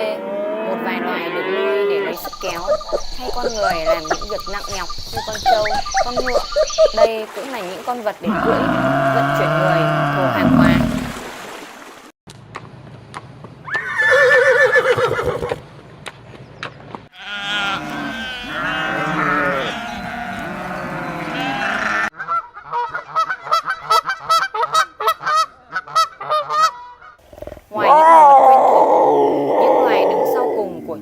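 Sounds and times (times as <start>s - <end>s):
farm animals calling: 0.0s - 7.1s, 8.2s - 11.2s, 17.2s - 31.0s.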